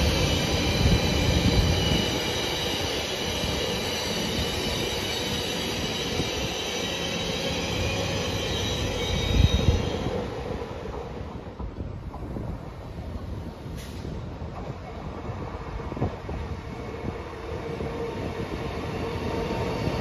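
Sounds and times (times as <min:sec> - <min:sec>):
train wheels squealing: 0:00.0 - 0:10.6, 0:16.5 - 0:20.0
low train rumble: 0:00.0 - 0:20.0.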